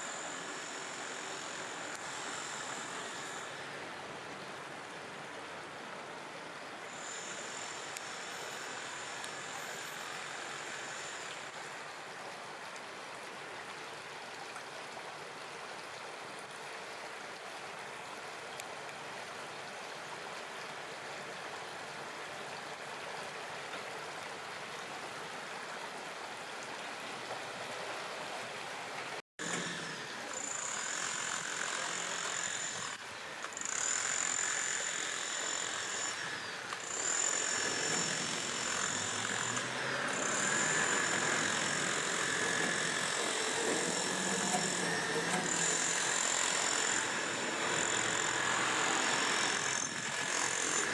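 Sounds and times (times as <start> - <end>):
river water rushing over concrete: 0.0 - 50.9.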